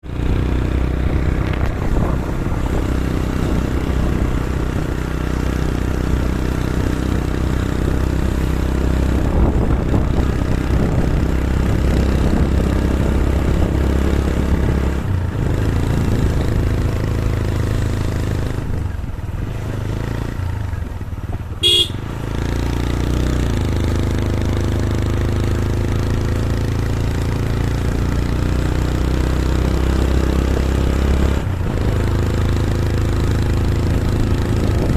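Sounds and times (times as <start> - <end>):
vehicle engine running: 0.0 - 34.9
short horn beep: 21.6 - 22.1.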